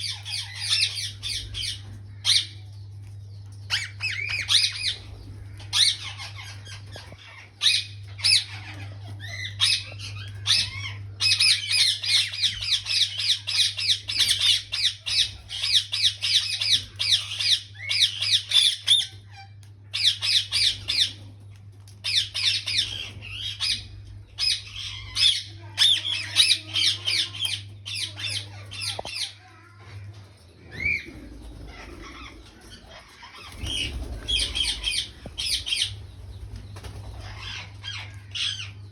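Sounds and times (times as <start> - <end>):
parakeets squawking: 0.0 - 2.6, 3.6 - 21.2, 22.0 - 38.9
low steady hum: 0.0 - 38.9.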